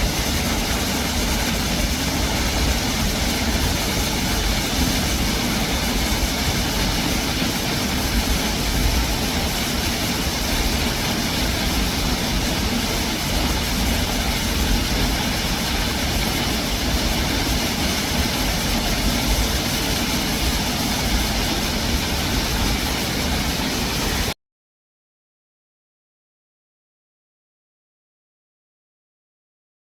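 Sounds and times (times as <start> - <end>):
waterfall roaring: 0.0 - 24.4.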